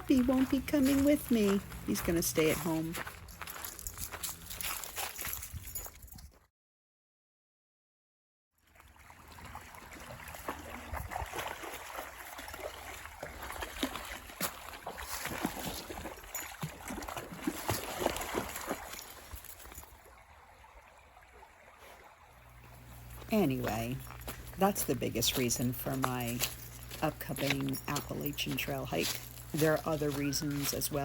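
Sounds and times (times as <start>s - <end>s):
brook gurgling over rocks: 8.8s - 23.0s.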